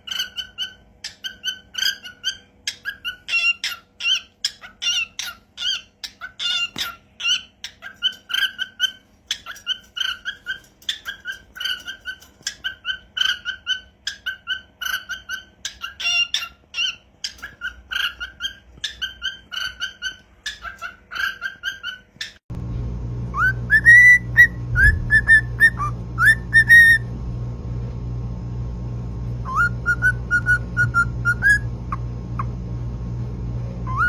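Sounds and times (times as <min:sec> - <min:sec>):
bird chirping: 0:00.0 - 0:22.4, 0:23.4 - 0:27.0, 0:29.4 - 0:32.5
parrot whistling a tune: 0:00.1 - 0:22.4, 0:23.3 - 0:27.1, 0:29.4 - 0:31.7
steady hum: 0:22.5 - 0:34.0.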